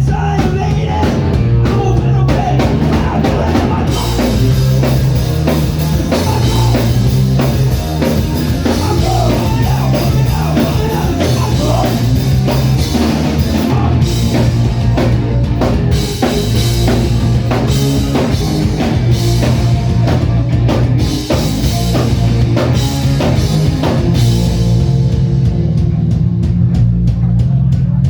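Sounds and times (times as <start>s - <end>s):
person singing: 0.0s - 4.9s, 5.8s - 7.5s, 8.2s - 14.4s
electric guitar: 0.0s - 26.8s
drum kit beat: 0.0s - 28.0s
live rock band playing: 0.0s - 28.0s.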